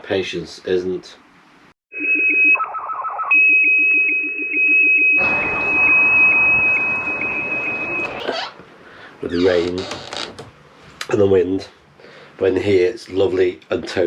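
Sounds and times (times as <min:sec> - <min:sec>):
high carrier whistle: 0:05.2 - 0:08.3
pulsing low radio signals: 0:05.2 - 0:08.4.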